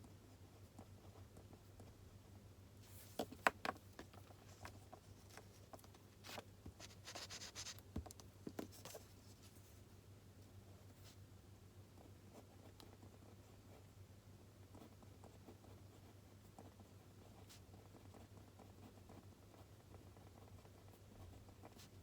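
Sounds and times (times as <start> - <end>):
faint steady hum: 0.0 - 22.0
pen scratching on paper: 6.2 - 7.8.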